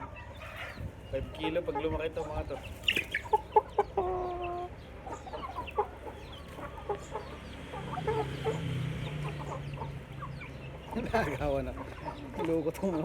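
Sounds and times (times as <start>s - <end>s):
chickens clucking: 0.0s - 13.0s
chicken drawn-out call: 2.8s - 12.3s.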